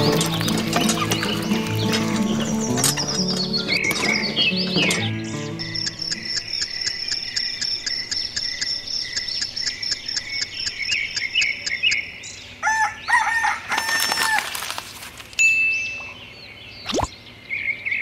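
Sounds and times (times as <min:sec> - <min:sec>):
high rhythmic chirping: 0:00.0 - 0:12.0
rooster crowing: 0:12.6 - 0:14.6.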